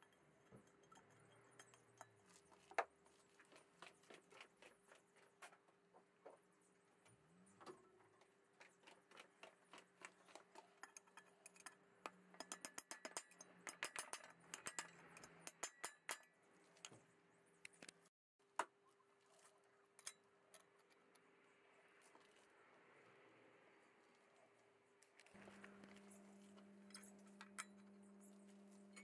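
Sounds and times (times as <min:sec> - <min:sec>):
metallic clicks and scrapes: 0:08.6 - 0:17.0, 0:25.0 - 0:29.0
faint steady hum: 0:18.7 - 0:29.0.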